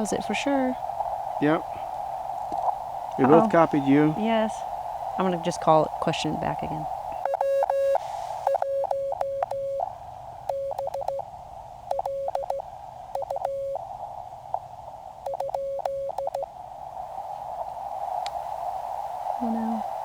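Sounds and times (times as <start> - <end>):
radio receiver hiss: 0.0 - 20.0
morse code tone: 5.2 - 9.9, 10.5 - 11.2, 11.9 - 12.6, 13.2 - 13.8.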